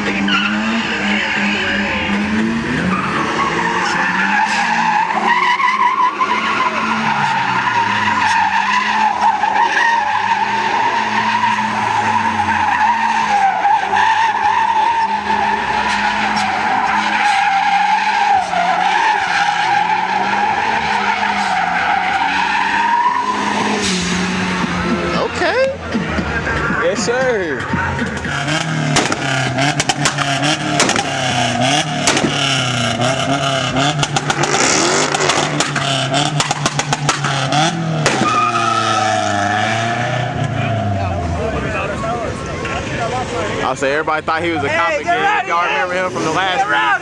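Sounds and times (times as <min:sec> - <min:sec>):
car engine at high revs: 0:00.0 - 0:44.9
tyres squealing: 0:00.1 - 0:41.1.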